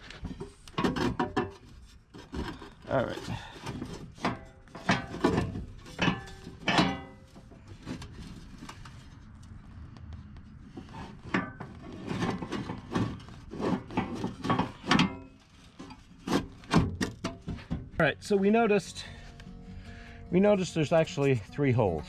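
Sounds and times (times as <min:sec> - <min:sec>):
metal parts knocking and clanking: 0:00.1 - 0:09.0, 0:10.8 - 0:18.0.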